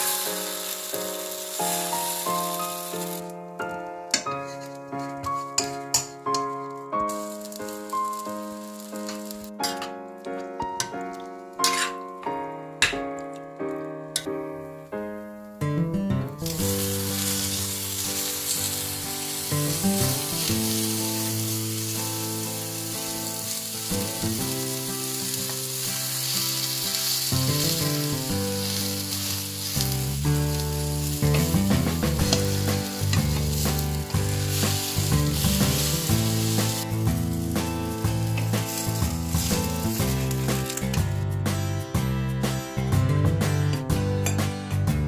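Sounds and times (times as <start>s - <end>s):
pancake sizzling in frying pan: 0.0s - 3.3s, 7.1s - 9.5s, 16.4s - 40.9s
spatula tapping and scraping: 4.1s - 6.5s
background music with bass: 27.4s - 45.0s.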